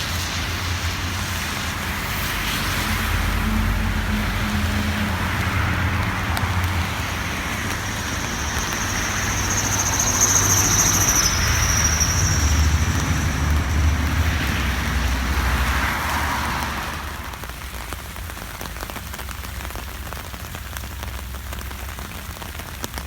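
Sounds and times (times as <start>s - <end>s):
high steady whine: 0.0s - 15.2s
car engines rumbling: 0.0s - 23.0s
tyres hissing on wet road: 0.0s - 23.0s.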